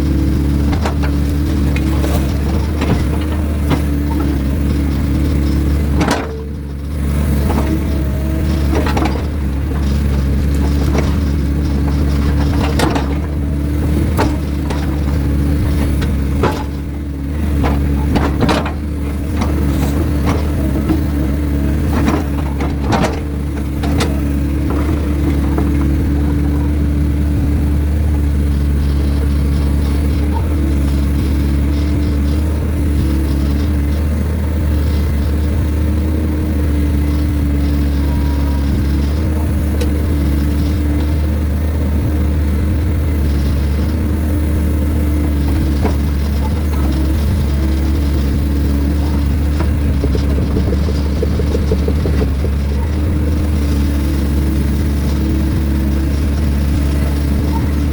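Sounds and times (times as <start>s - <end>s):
diesel excavator engine running: 0.0s - 57.9s
sharp knocks and clanks: 45.5s - 54.1s.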